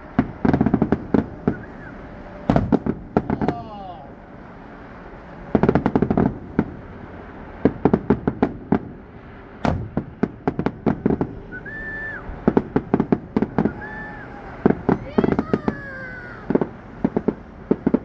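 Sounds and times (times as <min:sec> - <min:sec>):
fireworks crackling: 0:00.0 - 0:03.8, 0:04.7 - 0:18.0
short high whistle: 0:01.5 - 0:02.0, 0:11.5 - 0:12.3
firework bang: 0:02.5 - 0:03.7, 0:09.6 - 0:18.0.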